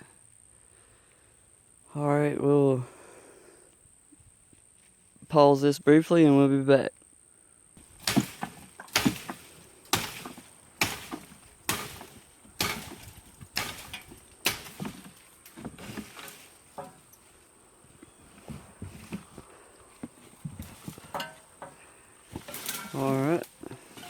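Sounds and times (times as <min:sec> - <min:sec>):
sharp knocks: 0:07.8 - 0:17.0.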